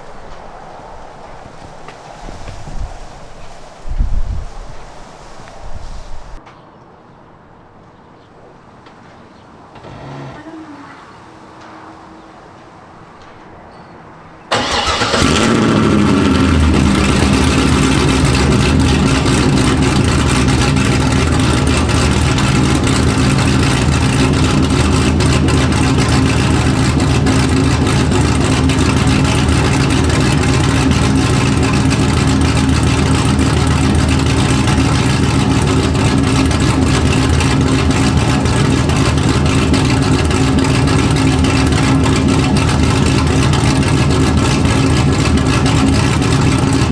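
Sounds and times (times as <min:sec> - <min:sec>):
car engine starting and idling: 0:14.4 - 0:46.9.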